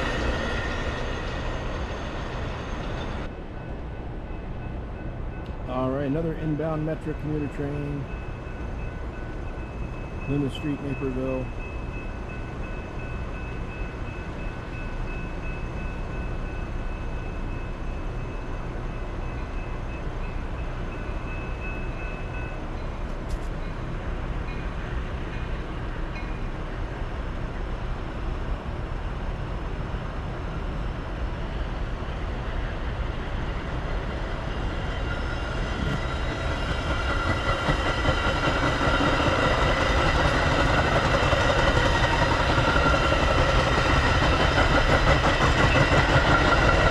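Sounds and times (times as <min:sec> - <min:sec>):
train rumbling: 0:00.0 - 0:46.9.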